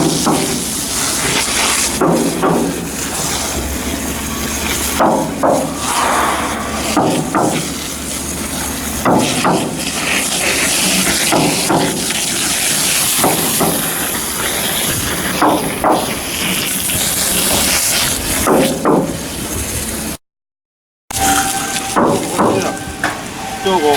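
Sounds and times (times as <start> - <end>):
metal knocks: 4.8 - 8.0, 21.2 - 23.9.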